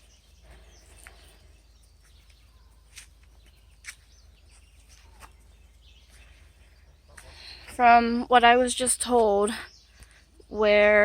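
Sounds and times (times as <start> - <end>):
faint outdoor ambience: 0.0 - 11.0.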